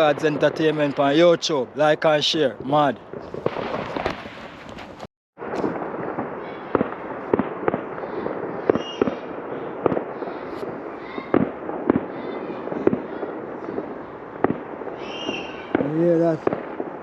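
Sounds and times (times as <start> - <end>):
distant fireworks bangs: 0.0 - 17.0.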